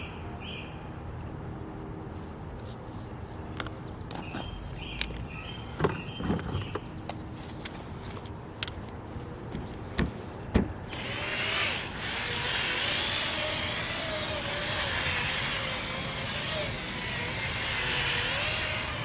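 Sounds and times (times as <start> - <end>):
drill spinning polishing pad: 10.9 - 19.0.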